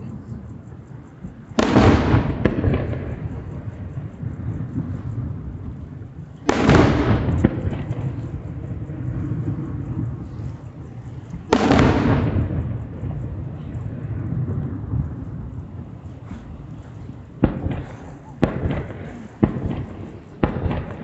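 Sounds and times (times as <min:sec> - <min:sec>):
firework shells booming: 0:01.2 - 0:21.0
sharp firework crack: 0:01.5 - 0:05.0, 0:06.4 - 0:10.6, 0:11.3 - 0:15.1, 0:16.2 - 0:21.0.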